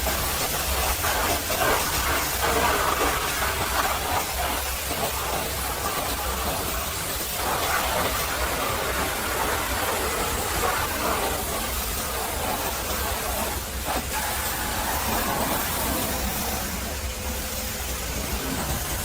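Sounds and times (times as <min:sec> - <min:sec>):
pressure washer spraying water: 0:00.0 - 0:19.0.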